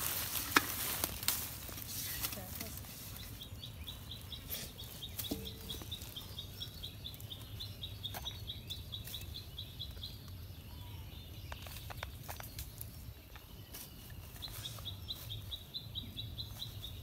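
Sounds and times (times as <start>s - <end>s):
bird chirping rapidly: 3.1s - 11.9s.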